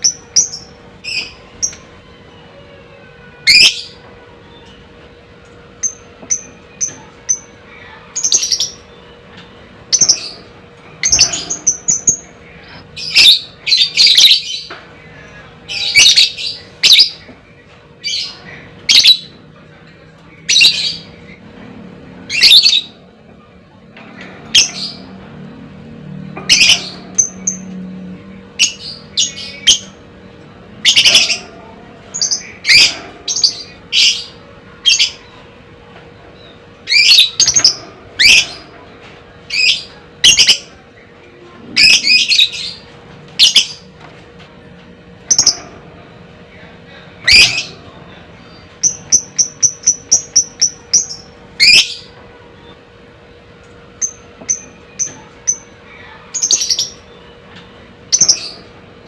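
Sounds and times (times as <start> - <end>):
lovebird chattering: 48.5 - 52.1, 58.1 - 58.7.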